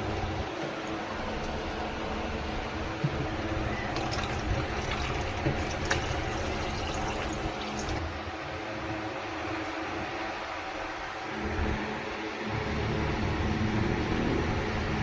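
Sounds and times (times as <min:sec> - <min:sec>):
water running from a tap: 0:03.9 - 0:08.0.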